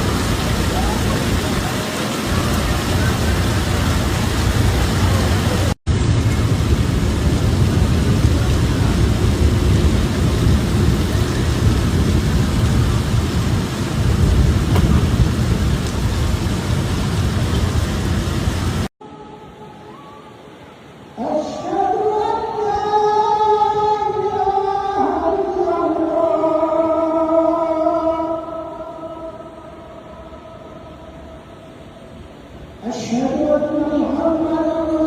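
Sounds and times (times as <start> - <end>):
heavy rain falling: 0.0 - 18.9, 24.0 - 34.6.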